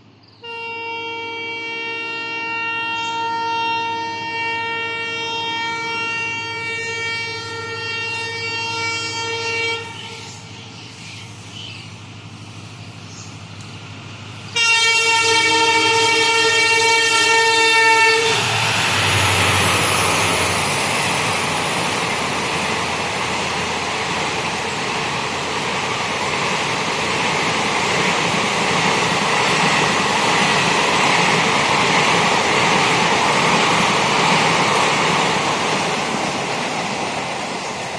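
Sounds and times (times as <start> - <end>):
locomotive horn blast: 0.4 - 10.2, 14.5 - 20.6
train coaches rushing and rattling: 2.1 - 37.9.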